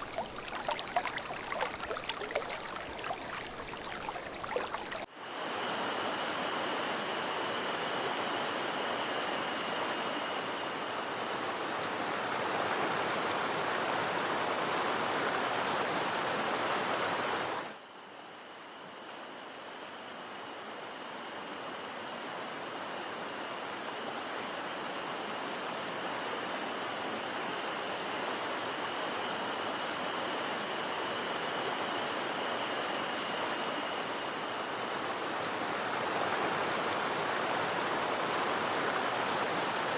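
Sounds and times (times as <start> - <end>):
stream rushing over rocks: 0.0 - 5.1.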